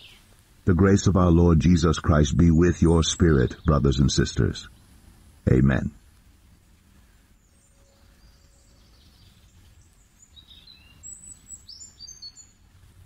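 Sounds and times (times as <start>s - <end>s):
small bird chirping: 0.0s - 0.3s, 7.2s - 12.8s
faint low rumble: 0.2s - 13.0s.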